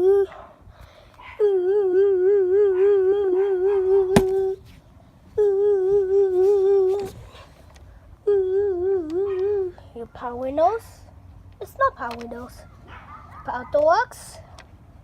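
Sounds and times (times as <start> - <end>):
person humming: 1.4 - 4.6, 5.4 - 7.2, 8.2 - 9.7.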